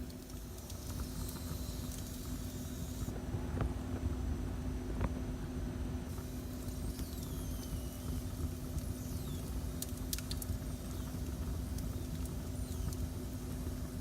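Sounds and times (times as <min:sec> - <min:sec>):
fire crackling pops: 0:06.2 - 0:14.0
wood fire rumbling: 0:06.2 - 0:14.0.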